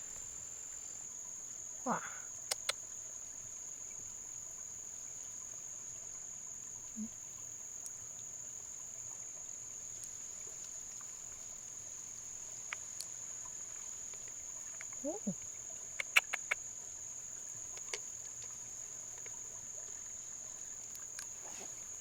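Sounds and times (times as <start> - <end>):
insects chirring: 0.0 - 22.0
sharp clicks: 2.5 - 2.8, 16.0 - 16.6.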